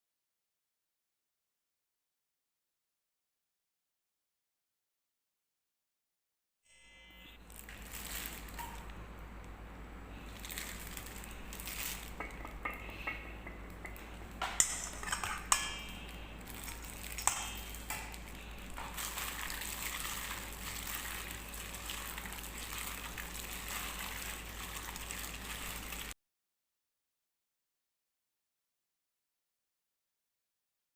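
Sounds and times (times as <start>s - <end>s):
utensil clinking on pan: 12.1s - 18.2s
food sizzling in a pan: 14.9s - 26.2s.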